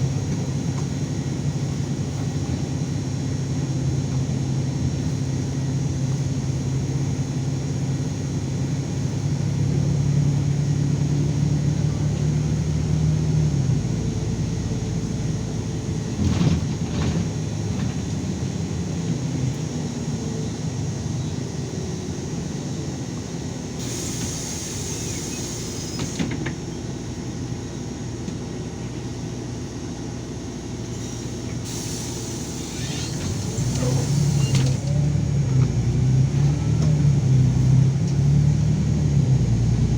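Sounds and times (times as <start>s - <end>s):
bus engine running: 0.0s - 39.9s
clatter: 16.2s - 18.0s.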